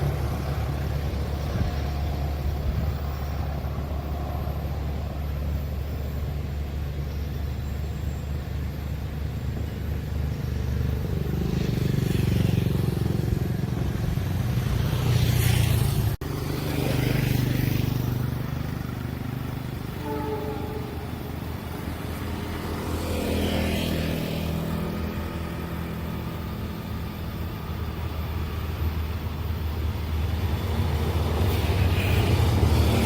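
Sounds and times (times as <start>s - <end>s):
low engine hum: 0.0s - 33.0s
cars and motorcycles passing: 9.7s - 33.0s.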